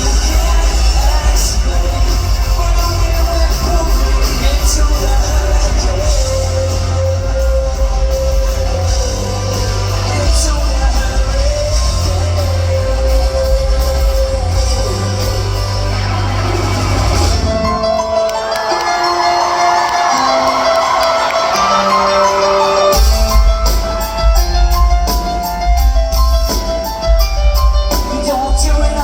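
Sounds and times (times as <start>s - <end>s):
sung vocals: 0.0s - 17.7s, 28.0s - 29.0s
live rock band playing: 0.0s - 29.0s.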